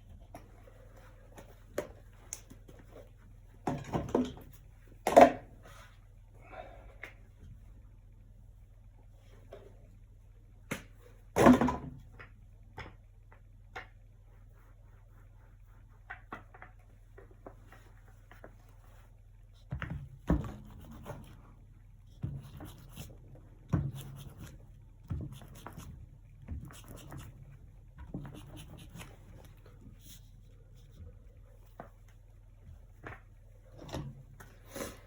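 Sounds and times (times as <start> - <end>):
faint steady hum: 0.0 - 35.0
brush dabbing on canvas: 14.2 - 16.5, 20.4 - 31.7.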